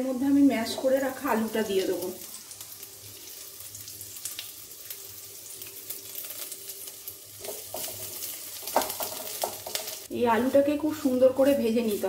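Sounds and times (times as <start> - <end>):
potato frying in hot oil: 0.0 - 12.0
spatula stirring: 6.3 - 10.1.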